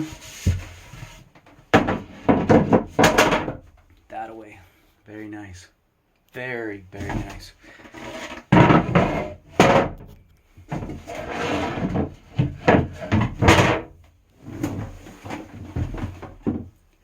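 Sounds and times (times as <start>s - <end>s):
wooden boards knocking: 1.7s - 3.7s, 8.5s - 10.0s
wood scraping on wood: 7.0s - 10.0s, 10.7s - 13.8s.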